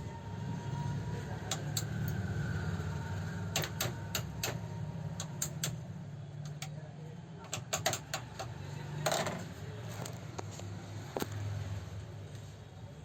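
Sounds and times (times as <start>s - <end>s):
sharp clicks: 3.5s - 4.6s, 5.2s - 6.8s.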